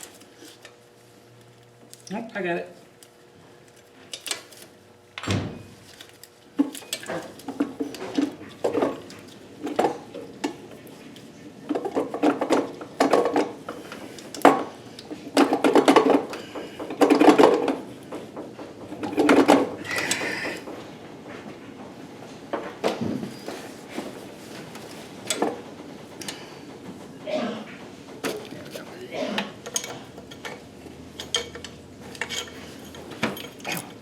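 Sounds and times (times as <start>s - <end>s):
metal tools clinking and clattering: 28.2s - 34.0s.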